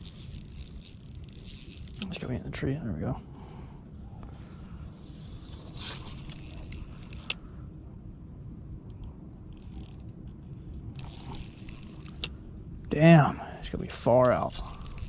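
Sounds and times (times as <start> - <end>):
fishing reel clicking and rattling: 0.0 - 2.1, 5.8 - 7.4, 8.9 - 12.3.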